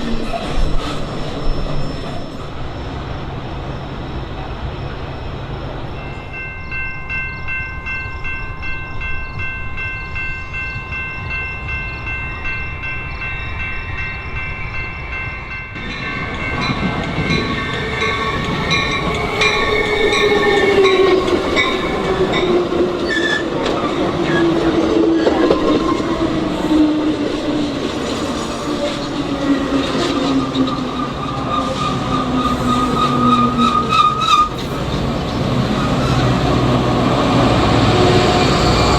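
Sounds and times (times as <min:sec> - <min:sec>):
train passing: 0:00.0 - 0:38.9
steady high ringing: 0:01.5 - 0:23.2.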